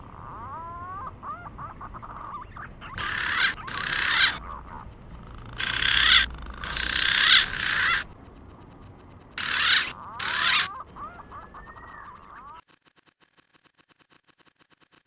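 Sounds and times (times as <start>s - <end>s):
pigeon warbling calls: 0.1s - 8.2s, 9.3s - 12.6s
soft gliding whistles: 10.5s - 12.5s.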